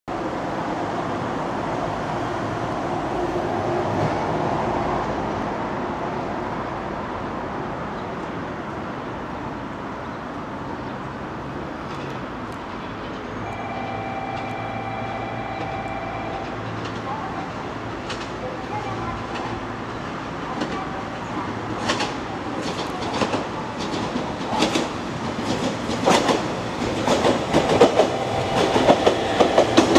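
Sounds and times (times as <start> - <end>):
broad outdoor rush: 0.1 - 29.9
electric train whine: 13.4 - 17.7.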